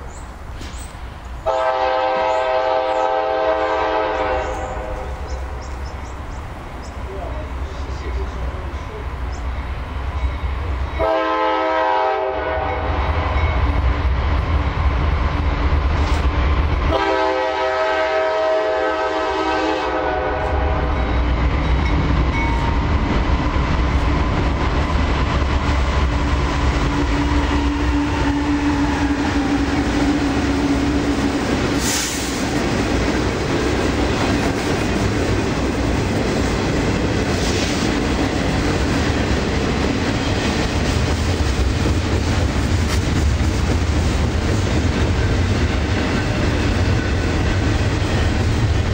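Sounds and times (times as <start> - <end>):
freight train rumbling on rails: 0.0 - 48.9
locomotive air horn: 1.4 - 5.1, 11.0 - 13.0, 16.9 - 21.0, 31.8 - 32.4.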